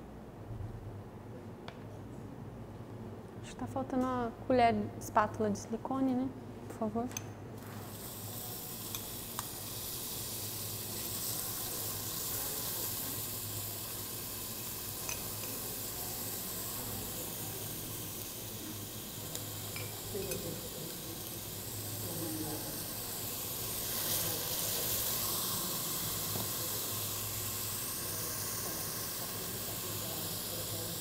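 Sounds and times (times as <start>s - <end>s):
garlic sizzling in oil: 7.9s - 31.0s.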